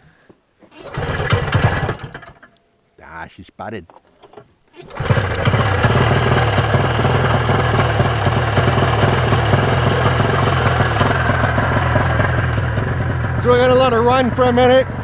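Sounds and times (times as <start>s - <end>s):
snowmobile engine running: 0.8s - 2.3s, 4.8s - 15.0s.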